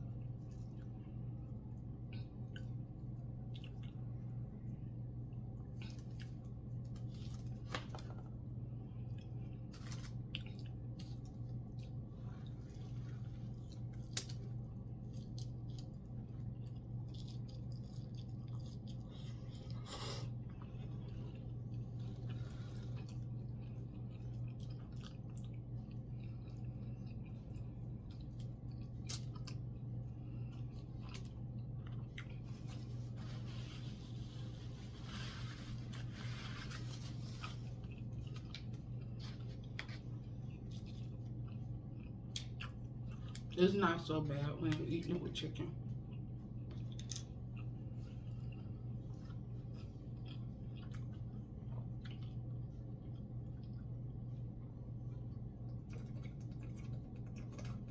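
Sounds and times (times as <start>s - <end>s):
steady low hum: 0.0s - 57.9s
chewing with smacking clicks: 3.4s - 4.0s, 10.2s - 12.0s, 13.6s - 19.8s, 20.6s - 32.5s, 37.8s - 43.6s, 45.9s - 57.9s.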